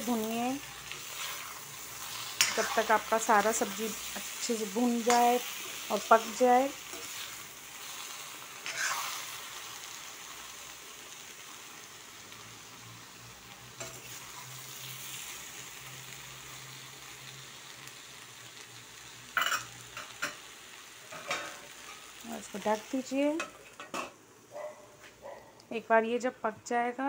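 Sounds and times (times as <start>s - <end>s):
vegetables sizzling in a pan: 0.0s - 26.3s
metal spatula scraping pan: 0.9s - 3.1s, 8.6s - 9.2s.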